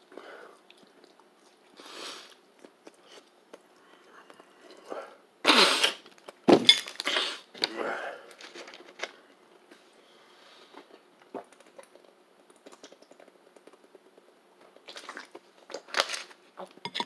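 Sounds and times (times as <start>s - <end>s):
close-up chewing: 0.5s - 4.9s, 10.7s - 16.4s.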